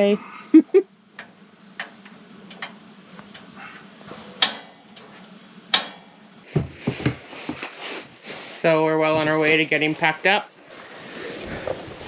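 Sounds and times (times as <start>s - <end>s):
steady low hum: 0.0s - 12.0s
dull thumps: 4.0s - 7.7s.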